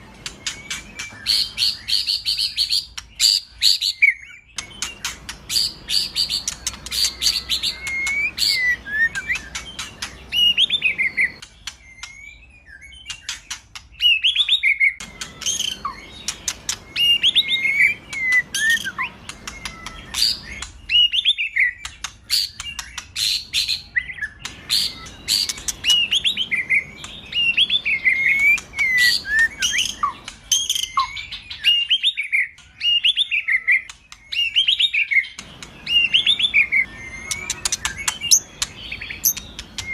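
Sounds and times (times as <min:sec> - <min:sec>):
bird singing whistled phrases: 0:00.0 - 0:39.9
bird sharp clicking notes: 0:04.6 - 0:12.2, 0:33.8 - 0:39.9.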